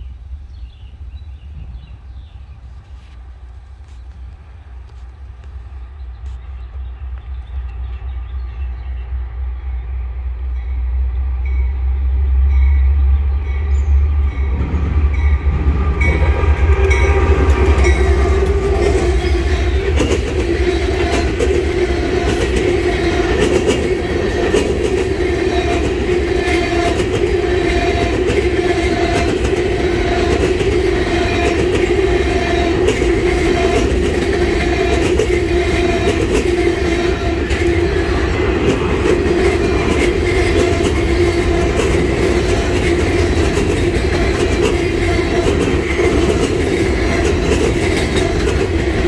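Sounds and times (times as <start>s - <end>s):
diesel locomotive rumbling: 0.0s - 49.0s
freight cars rolling: 13.9s - 49.0s
wheels clacking over rail joints: 14.4s - 49.0s.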